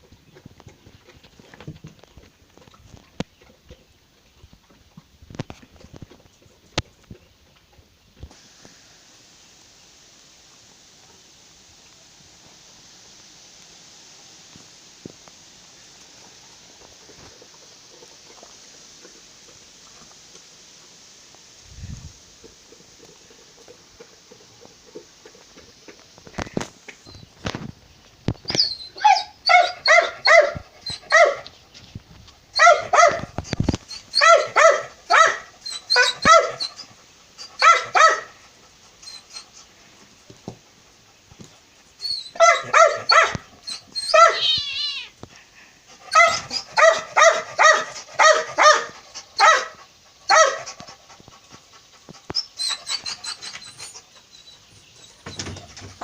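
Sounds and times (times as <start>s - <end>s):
small dog yapping: 28.6s - 31.4s, 32.6s - 33.3s, 33.9s - 36.8s, 37.6s - 38.3s, 42.3s - 45.1s, 46.1s - 50.8s.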